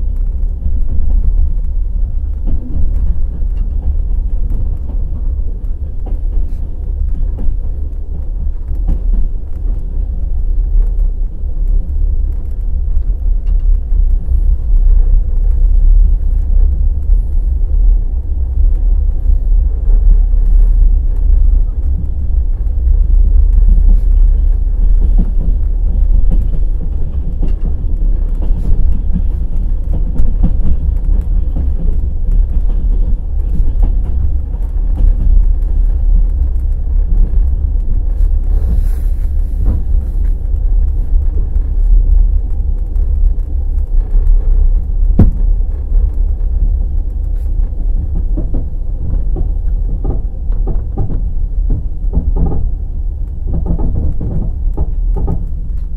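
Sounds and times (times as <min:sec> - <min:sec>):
heavy train rumble: 0:00.0 - 0:55.9
train wheels knocking on rail joints: 0:02.2 - 0:09.8, 0:19.2 - 0:43.1, 0:44.5 - 0:52.8, 0:53.4 - 0:55.9.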